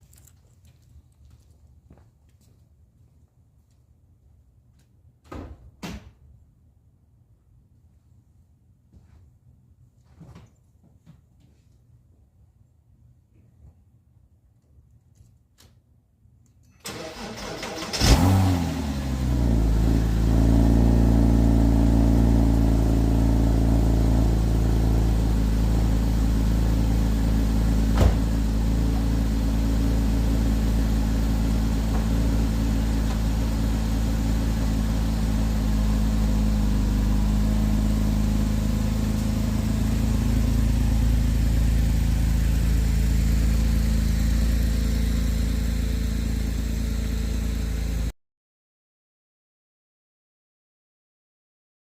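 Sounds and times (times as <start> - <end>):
car engine revving and idling: 17.2 - 48.1.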